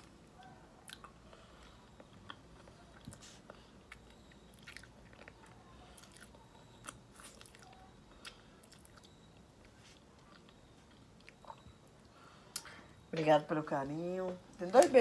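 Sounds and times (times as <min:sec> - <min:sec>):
person chewing with wet clicks: 0:00.0 - 0:13.0.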